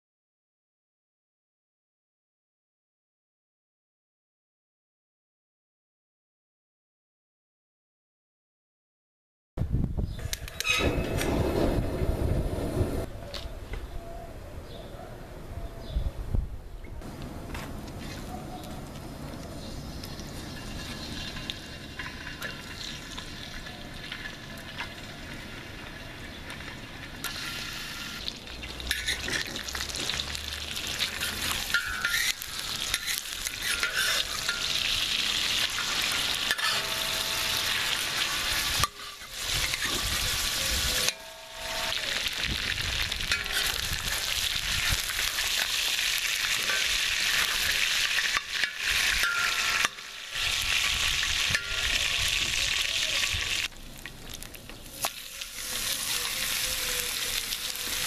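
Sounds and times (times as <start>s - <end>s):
metal spatula scraping steel pan: 10.4s - 11.3s, 28.9s - 30.1s, 30.9s - 42.0s, 43.3s - 44.3s, 46.5s - 50.5s
chicken sizzling in hot oil: 19.7s - 53.7s, 54.3s - 58.0s.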